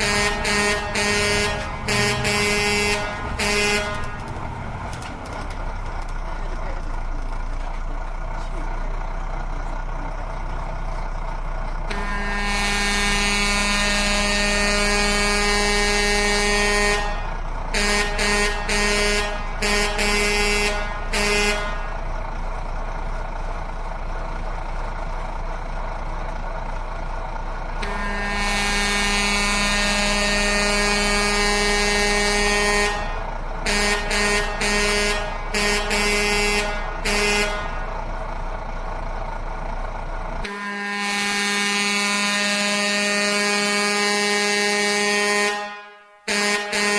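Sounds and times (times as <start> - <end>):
truck horn blasts and toots: 0.0 - 4.6, 11.9 - 22.2, 27.7 - 38.2, 40.4 - 46.9
low vehicle hum: 0.0 - 45.3.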